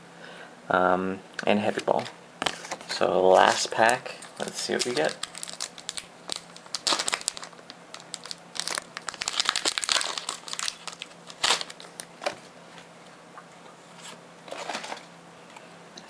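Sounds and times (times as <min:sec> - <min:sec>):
wrapper tearing and crinkling: 0:02.4 - 0:12.1.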